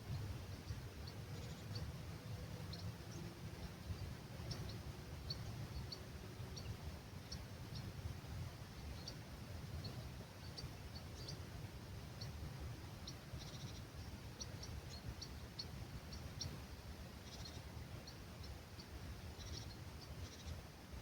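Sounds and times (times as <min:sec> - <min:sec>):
low rumble of breeze: 0:00.0 - 0:21.0
small birds chirping: 0:00.0 - 0:21.0
bird trills: 0:17.2 - 0:20.6.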